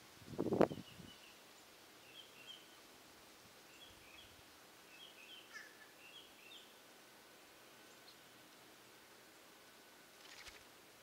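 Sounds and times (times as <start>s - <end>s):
faint bird chirps: 0.6s - 2.9s, 3.6s - 6.8s.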